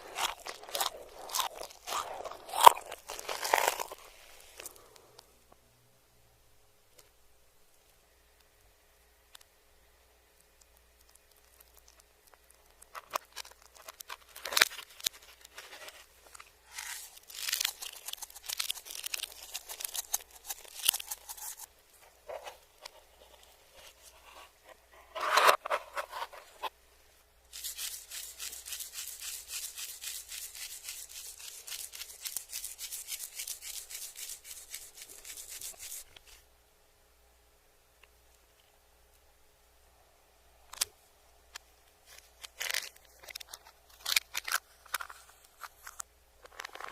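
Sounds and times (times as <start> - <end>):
reversed eating crunching: 0.0 - 5.2, 10.4 - 25.2, 27.5 - 36.1
quick scratchy strokes: 16.7 - 21.7, 27.5 - 36.1.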